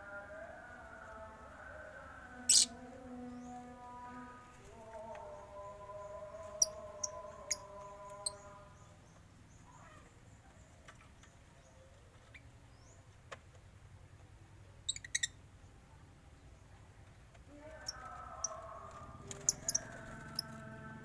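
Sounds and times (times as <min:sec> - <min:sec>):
birds chirping: 0:04.7 - 0:13.1, 0:14.9 - 0:15.4, 0:17.6 - 0:21.0.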